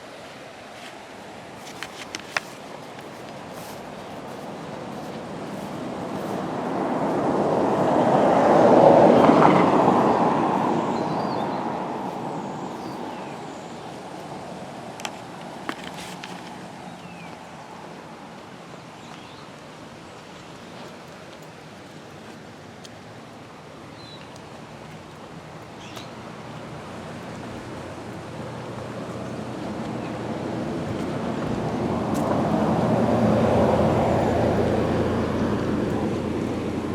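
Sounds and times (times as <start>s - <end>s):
vehicle passing by: 3.6s - 14.7s, 24.5s - 36.9s
steady background rush: 24.5s - 36.9s.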